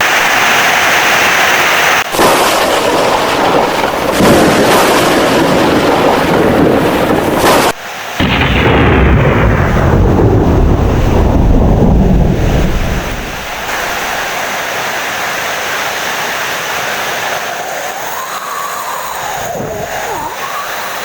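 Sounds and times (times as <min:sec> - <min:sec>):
heavy rain: 0:00.0 - 0:21.0
loud thunder: 0:02.1 - 0:14.2.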